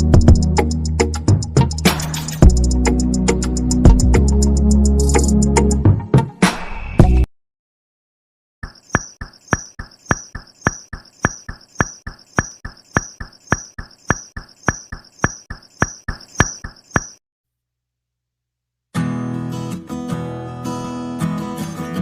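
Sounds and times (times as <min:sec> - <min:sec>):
clip-clop of sharp knocks: 0:08.8 - 0:17.2.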